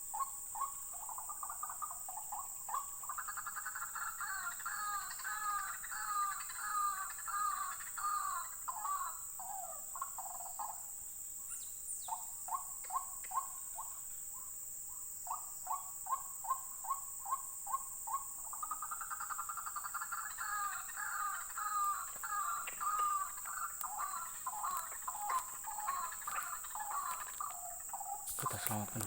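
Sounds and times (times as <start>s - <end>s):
birds calling: 0.1s - 10.8s, 15.2s - 29.0s.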